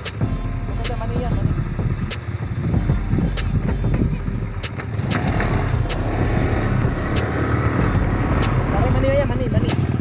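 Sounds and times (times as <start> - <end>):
motorcycle running: 0.0 - 10.0
sharp clicks: 3.4 - 6.0.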